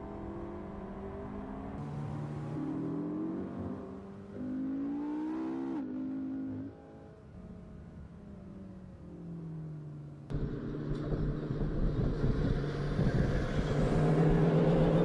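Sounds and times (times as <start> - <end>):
car engine running: 10.3 - 15.0.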